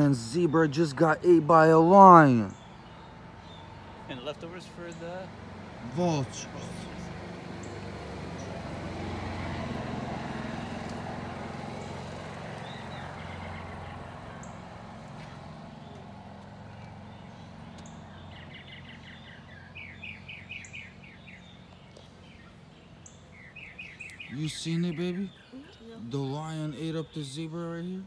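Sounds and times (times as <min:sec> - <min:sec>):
small bird chirping: 0:11.7 - 0:28.0.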